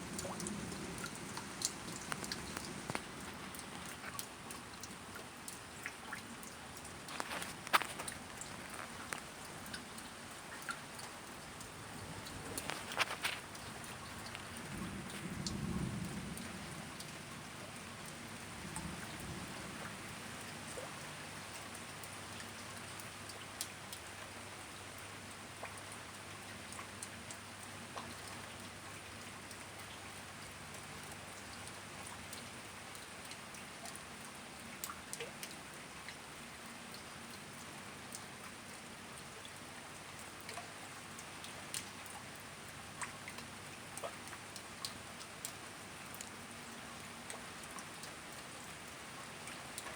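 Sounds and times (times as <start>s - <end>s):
steady rain: 0.0s - 49.9s
drops ticking on a surface: 0.1s - 15.6s.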